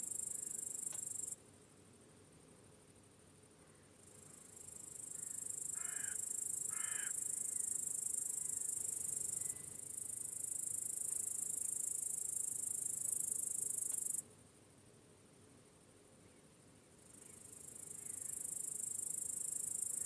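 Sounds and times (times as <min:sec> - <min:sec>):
cricket chorus: 0:00.0 - 0:20.0
crow cawing: 0:05.2 - 0:07.2.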